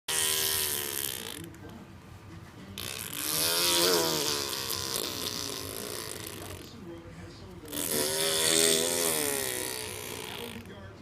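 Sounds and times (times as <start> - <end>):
baby vocalizing: 3.2 - 6.5.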